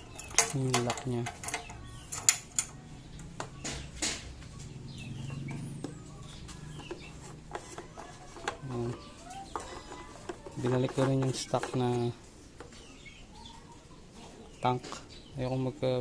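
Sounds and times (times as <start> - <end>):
sharp clicks and knocks: 0.0 - 4.5.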